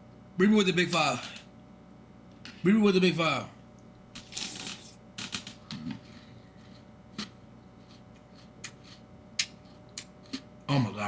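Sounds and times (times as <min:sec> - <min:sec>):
crunchy cereal being chewed: 0:04.2 - 0:05.5, 0:06.6 - 0:10.5.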